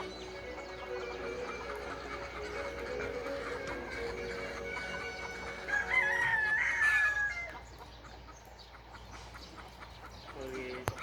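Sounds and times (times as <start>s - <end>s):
rooster crowing: 3.7s - 7.6s.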